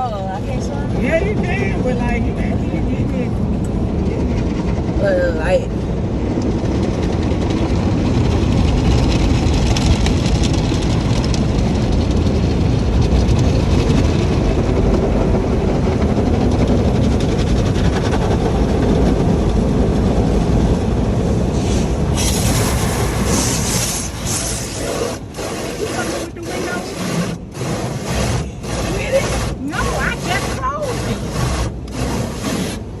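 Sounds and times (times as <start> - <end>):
car wash water and machinery rumble: 0.0 - 33.0
bright hiss: 22.1 - 25.0.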